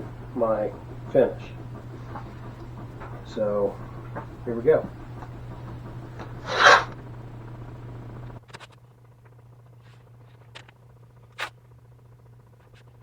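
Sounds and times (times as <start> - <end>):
low steady hum: 0.0 - 8.4
tape ripping off roll: 6.4 - 7.0.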